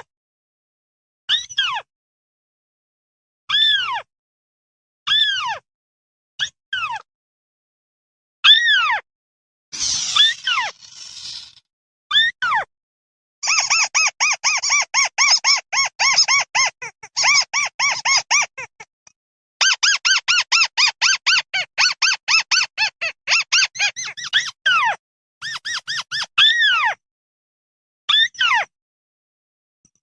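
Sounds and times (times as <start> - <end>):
bird squeaky flock call: 13.4 - 18.8, 19.6 - 26.6.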